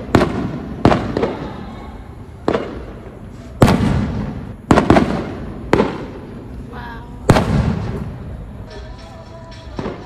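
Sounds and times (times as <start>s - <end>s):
firework shells bursting: 2.4s - 8.8s.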